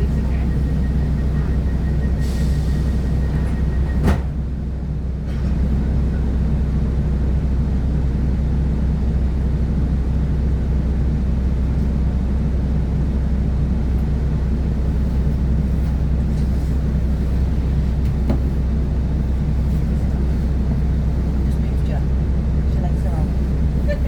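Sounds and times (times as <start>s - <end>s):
train wheels on track: 0.0s - 4.6s, 14.2s - 24.0s
train diesel engine rumble: 0.0s - 24.0s.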